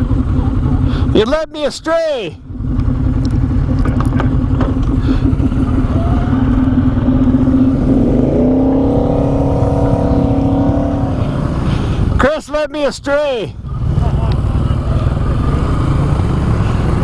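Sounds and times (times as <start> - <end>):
atv engine revving: 2.5 - 12.2, 13.5 - 17.0.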